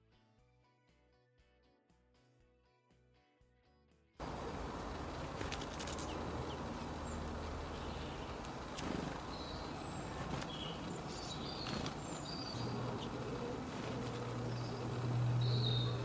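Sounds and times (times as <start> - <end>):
low hum: 4.2 - 16.0
small birds chirping: 4.2 - 16.0.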